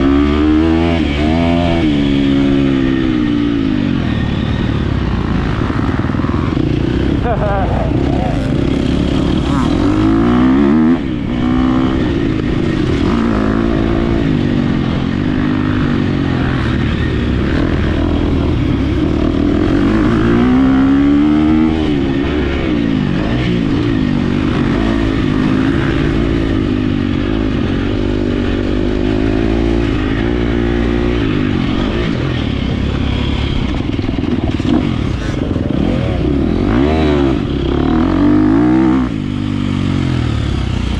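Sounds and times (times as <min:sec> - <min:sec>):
motocross bike engine revving: 0:00.0 - 0:40.9
rushing wind: 0:00.0 - 0:40.9
bike rattling: 0:21.9 - 0:40.9.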